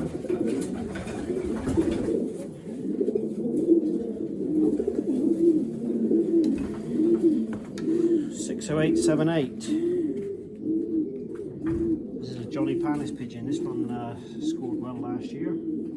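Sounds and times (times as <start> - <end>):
pigeons cooing: 0.0 - 15.9.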